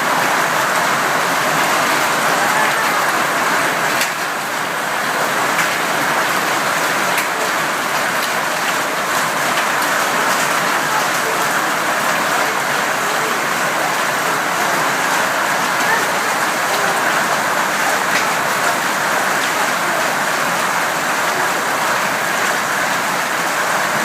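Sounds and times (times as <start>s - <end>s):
sharp hail hits: 0.1s - 4.5s, 5.2s - 24.0s
hail clattering: 1.6s - 23.3s.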